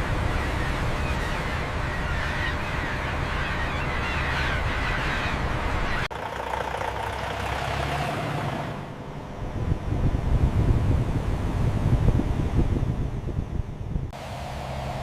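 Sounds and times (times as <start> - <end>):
engine running: 6.1 - 12.0, 14.1 - 15.0
low steady hum: 8.3 - 15.0.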